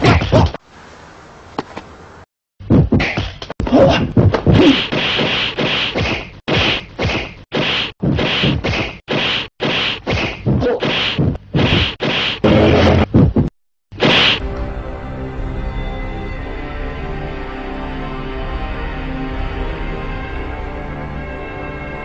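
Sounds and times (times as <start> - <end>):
whacks and slaps: 0.0 - 0.6, 2.7 - 12.4, 13.3 - 14.4.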